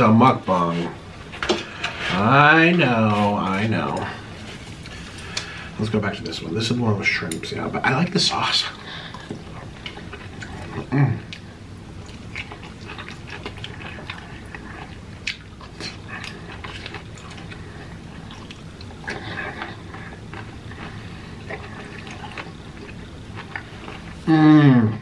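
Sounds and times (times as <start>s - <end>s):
wet chewing and lip-smacking: 9.1s - 24.2s.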